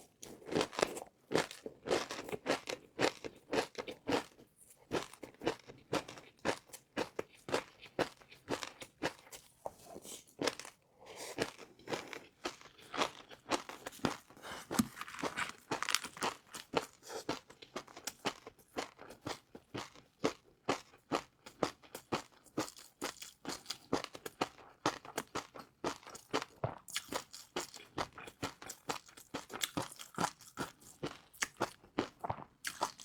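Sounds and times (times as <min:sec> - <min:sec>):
crunching crispy noodles: 0:12.7 - 0:17.4.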